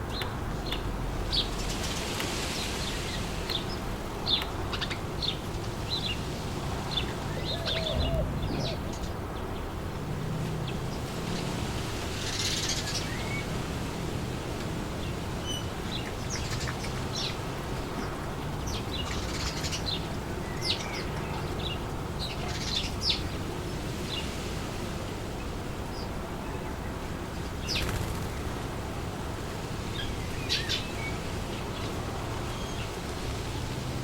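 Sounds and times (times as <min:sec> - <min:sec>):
small birds chirping: 0:00.0 - 0:09.8, 0:15.0 - 0:24.4, 0:25.9 - 0:28.6, 0:29.5 - 0:33.7
wind blowing through trees: 0:00.0 - 0:34.0.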